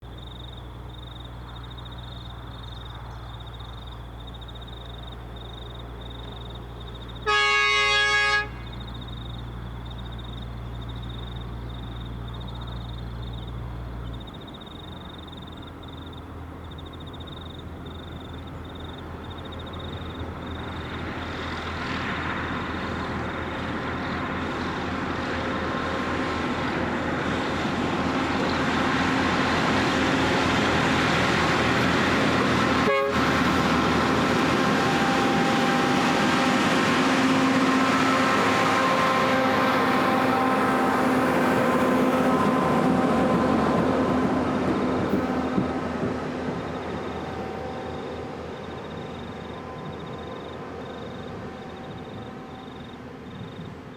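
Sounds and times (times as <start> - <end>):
diesel engines and rolling wheels: 0.0 - 53.9
machine horn blast: 7.2 - 8.8, 32.8 - 34.0, 34.6 - 43.6.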